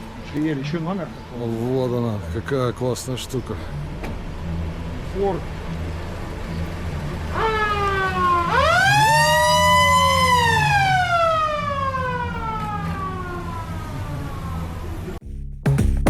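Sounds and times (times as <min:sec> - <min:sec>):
traffic rumble: 0:00.0 - 0:15.2
siren wailing: 0:07.3 - 0:15.2.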